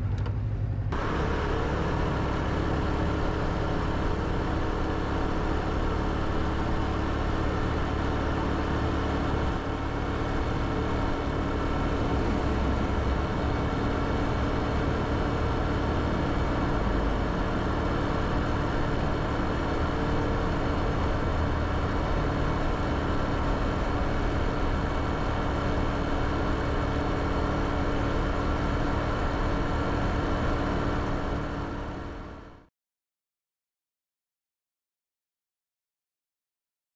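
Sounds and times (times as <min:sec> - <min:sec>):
motorcycle engine running: 0:00.0 - 0:32.4.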